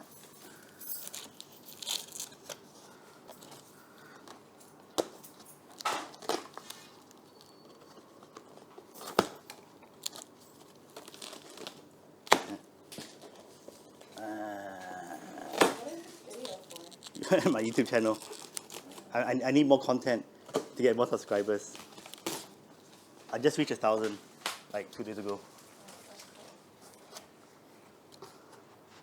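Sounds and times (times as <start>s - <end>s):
packaging tearing and crinkling: 0.7s - 2.8s, 5.6s - 13.4s, 15.4s - 19.1s, 21.8s - 22.5s.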